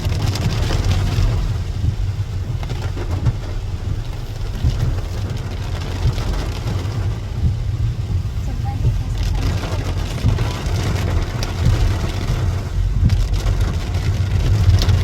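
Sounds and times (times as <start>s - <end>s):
rain falling: 0.0s - 15.0s
steady low rumble: 0.0s - 15.0s.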